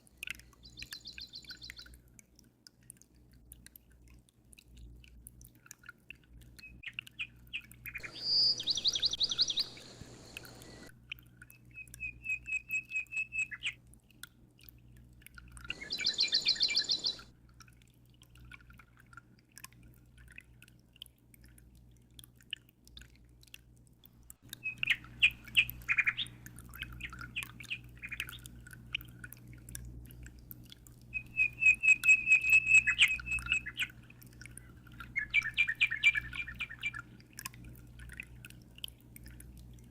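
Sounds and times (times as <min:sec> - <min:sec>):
songbirds chirping and trilling: 0:00.4 - 0:01.9, 0:06.7 - 0:10.9, 0:11.6 - 0:13.8, 0:15.7 - 0:17.3, 0:24.6 - 0:28.5, 0:31.2 - 0:34.0, 0:35.0 - 0:37.0
faint low hum: 0:08.0 - 0:10.9.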